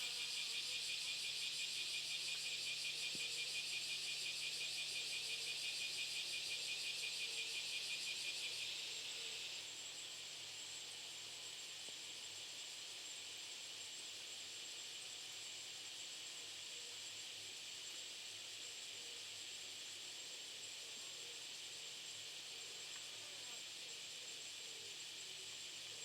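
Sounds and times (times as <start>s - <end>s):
insects chirring: 0.0s - 11.8s.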